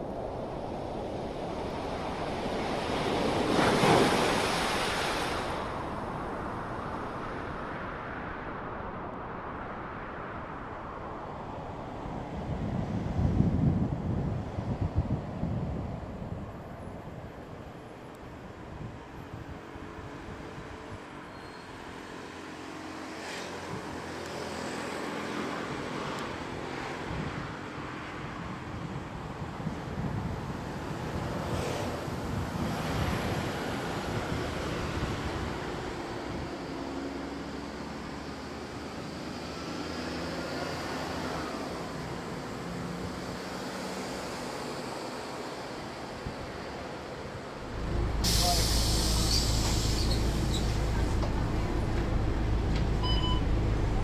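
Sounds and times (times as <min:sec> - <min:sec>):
traffic rush: 0:00.0 - 0:54.0
vehicle passing close by: 0:31.3 - 0:54.0
low engine hum: 0:33.2 - 0:54.0.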